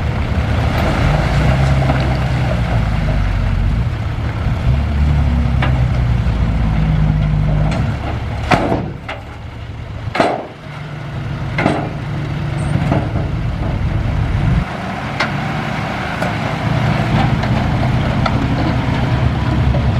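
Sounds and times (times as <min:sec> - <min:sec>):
heavy diesel engine running: 0:00.0 - 0:19.9
sharp metal clanks or squeals: 0:11.6 - 0:13.4.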